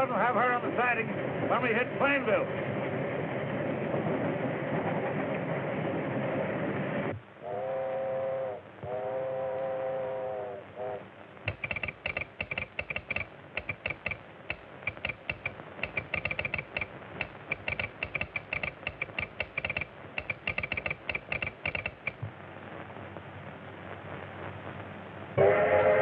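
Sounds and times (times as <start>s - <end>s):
telegraph sounder clicking: 11.4s - 22.4s.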